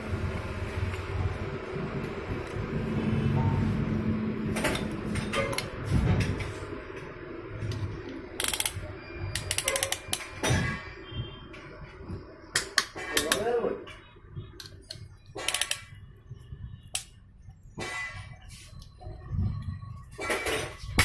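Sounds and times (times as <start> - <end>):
metal tools clicking on engine parts: 7.6 - 10.4, 14.6 - 16.0
ratchet clicking: 8.4 - 10.3, 14.6 - 16.0.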